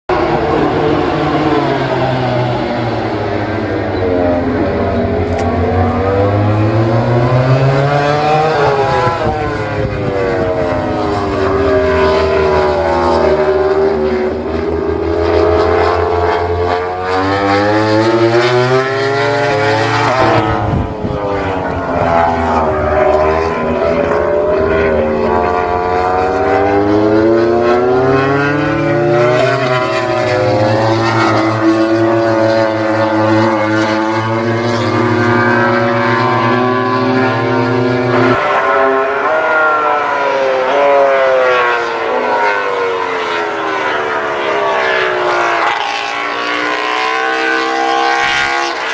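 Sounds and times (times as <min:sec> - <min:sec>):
racing motorcycle engines: 0:00.1 - 0:48.9.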